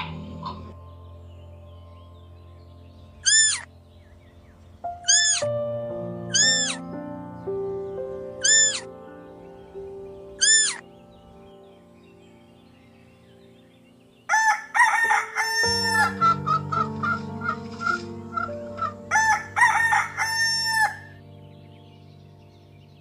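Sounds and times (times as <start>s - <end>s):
high-pitched animal calls: 0.0s - 0.8s, 3.2s - 3.7s, 5.0s - 5.5s, 6.2s - 6.8s, 8.4s - 8.9s, 10.4s - 10.8s
background music with held notes: 0.0s - 23.0s.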